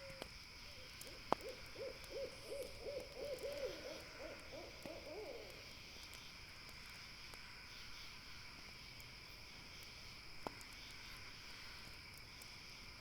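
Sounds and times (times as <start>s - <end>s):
owl hooting: 1.4s - 5.6s.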